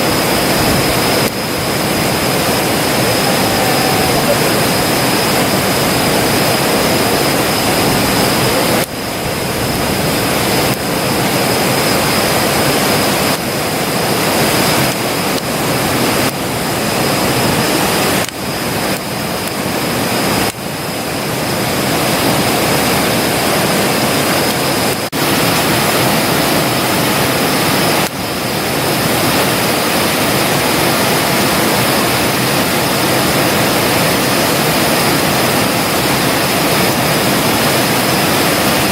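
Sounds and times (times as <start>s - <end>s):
campfire burning: 0.0s - 20.6s.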